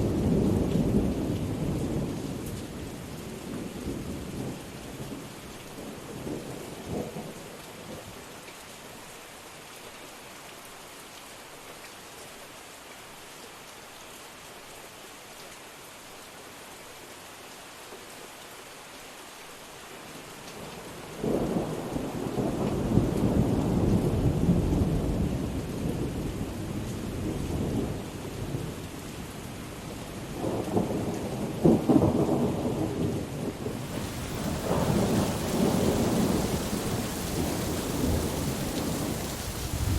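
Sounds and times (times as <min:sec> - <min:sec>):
rain hissing: 0:33.5 - 0:39.9
thunder rolling: 0:33.6 - 0:39.9.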